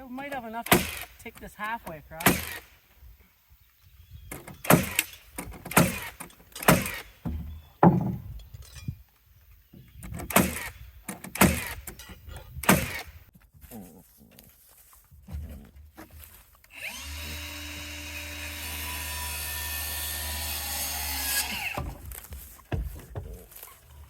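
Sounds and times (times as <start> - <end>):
heavy knocks on wooden boards: 6.7 - 8.4, 22.7 - 23.5.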